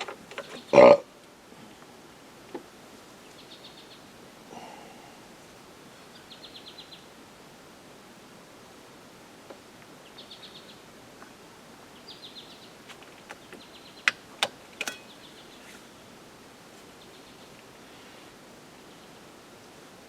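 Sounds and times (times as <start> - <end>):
faint outdoor background hiss: 0.0 - 20.0
small bird chirping trills: 3.1 - 4.1, 5.9 - 7.1, 10.0 - 10.9, 11.9 - 14.2, 14.8 - 15.9
sharp clicks or knocks: 14.1 - 15.1.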